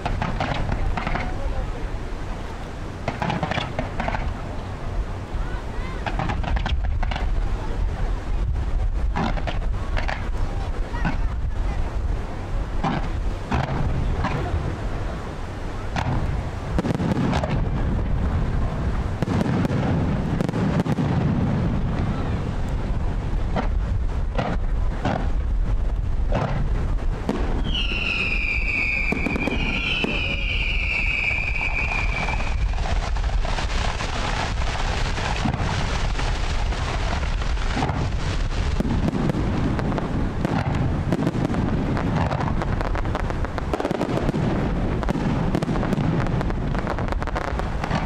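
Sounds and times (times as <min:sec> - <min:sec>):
fireworks bangs and crackle: 0:00.0 - 0:48.0
wind rumbling on microphone: 0:00.0 - 0:48.0
high firework whistle: 0:27.4 - 0:33.4.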